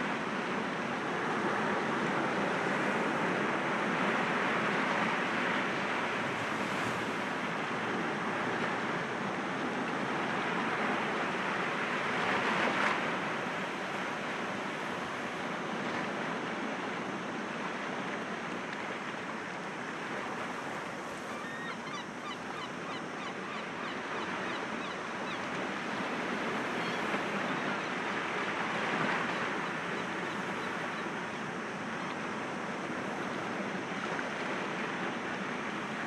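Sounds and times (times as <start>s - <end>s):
sea waves breaking against rocks: 4.2s - 8.6s.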